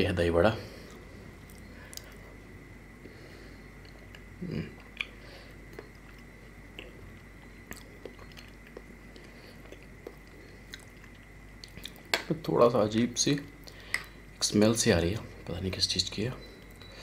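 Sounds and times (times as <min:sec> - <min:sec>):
faint steady high tone: 0:00.0 - 0:17.0
person chewing soft food: 0:00.7 - 0:02.4, 0:03.0 - 0:12.2, 0:13.6 - 0:14.3.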